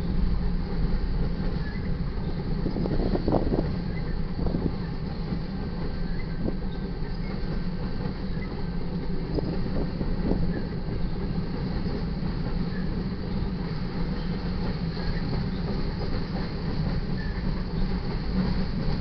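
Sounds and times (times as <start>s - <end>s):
steel wheels rumbling on rail: 0.0s - 19.0s.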